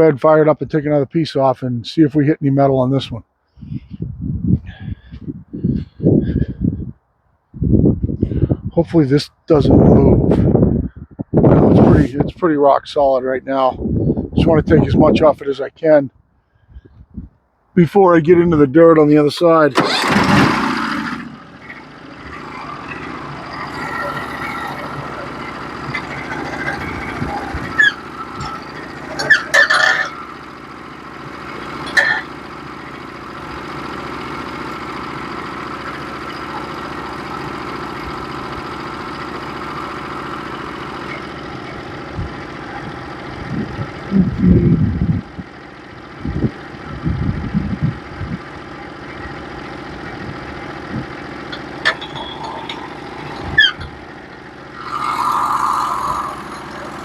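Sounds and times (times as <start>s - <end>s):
sawmill engine running: 17.9s - 57.0s
saw blade cutting log: 31.6s - 32.4s, 54.8s - 57.0s.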